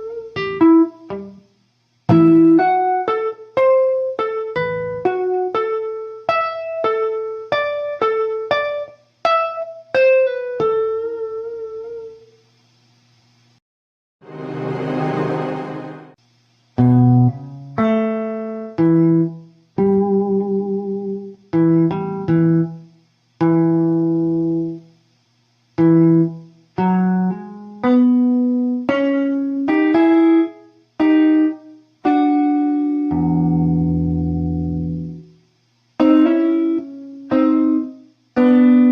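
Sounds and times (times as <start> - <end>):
clean blues guitar notes: 2.1 - 8.8, 25.8 - 35.2, 36.0 - 38.9.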